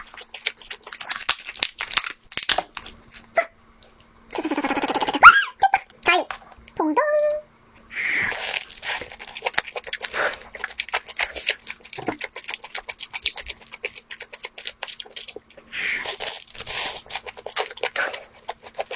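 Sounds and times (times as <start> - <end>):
wet chewing and lip-smacking: 0.0 - 2.1, 8.3 - 18.9.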